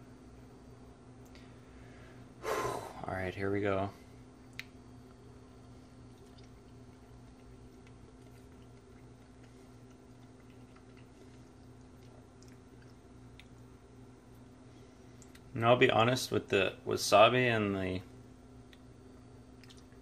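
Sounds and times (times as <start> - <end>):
low room hum: 0.0 - 20.0
quiet chewing mouth clicks: 6.1 - 13.6, 19.6 - 20.0.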